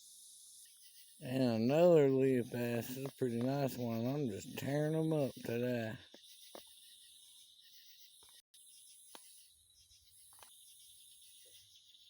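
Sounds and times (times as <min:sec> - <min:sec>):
insects chirping: 0:00.1 - 0:08.2.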